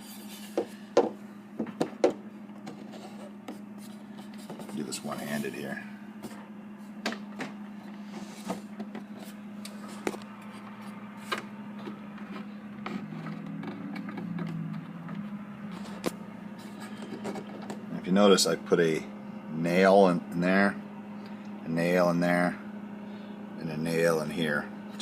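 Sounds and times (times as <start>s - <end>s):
steady low hum: 0.0s - 25.0s
shelf clicks and knocks: 1.0s - 2.8s.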